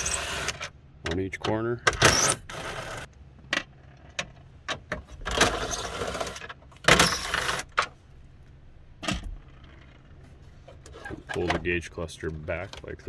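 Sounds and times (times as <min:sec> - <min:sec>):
cordless drill running: 0:00.0 - 0:00.6.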